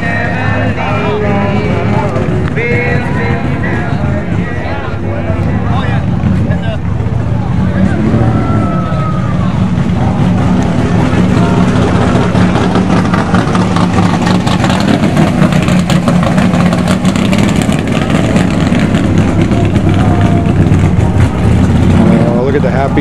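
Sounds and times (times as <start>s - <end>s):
car engine idling: 0.0s - 23.0s
murmur of voices: 0.0s - 23.0s.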